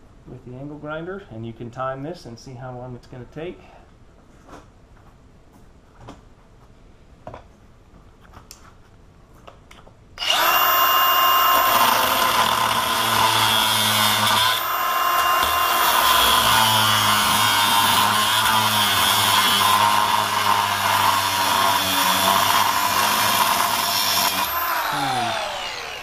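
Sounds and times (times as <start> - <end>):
angle grinder cutting steel: 10.2 - 26.0.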